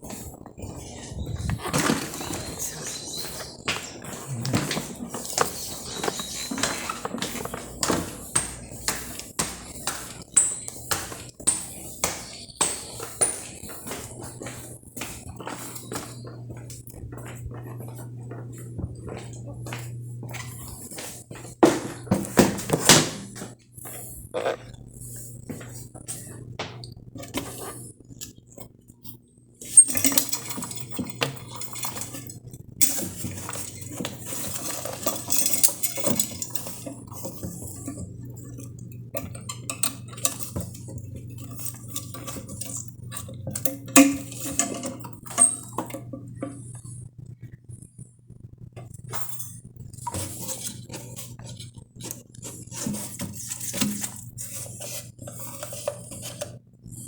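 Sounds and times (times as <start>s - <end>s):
steady low hum: 0.0s - 57.0s
hard objects clinking and rattling: 29.0s - 47.0s.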